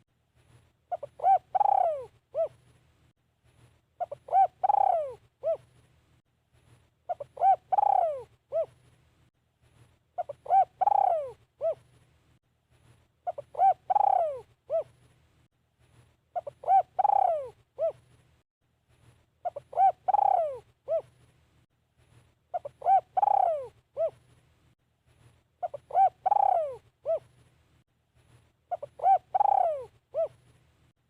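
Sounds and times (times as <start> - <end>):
dove cooing: 0.9 - 2.6, 4.0 - 5.7, 7.1 - 8.8, 10.2 - 11.9, 13.2 - 15.0, 16.4 - 18.1, 19.4 - 21.2, 22.5 - 24.2, 25.6 - 27.4, 28.7 - 30.5.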